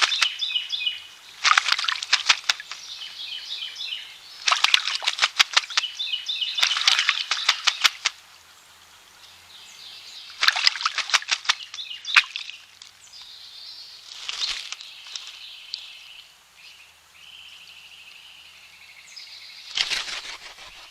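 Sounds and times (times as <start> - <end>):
small birds singing: 0.0 - 20.9
bird wings splashing water: 1.4 - 2.9, 4.4 - 8.2, 10.3 - 13.0, 14.1 - 15.3.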